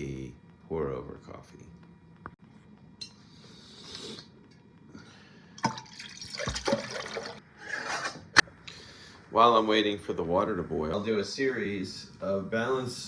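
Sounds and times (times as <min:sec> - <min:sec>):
water pouring into kettle: 0:05.6 - 0:07.4.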